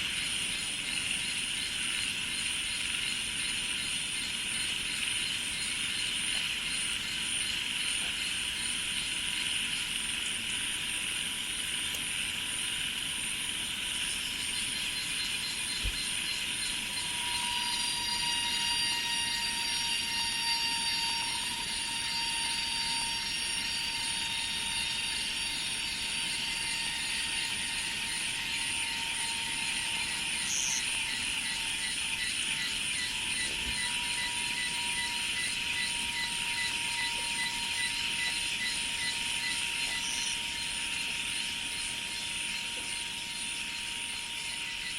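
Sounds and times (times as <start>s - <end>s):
insects buzzing drone: 0.0s - 44.9s
fast pulsing insect trill: 0.1s - 44.9s
high-pitched insect singing tones: 12.7s - 44.9s.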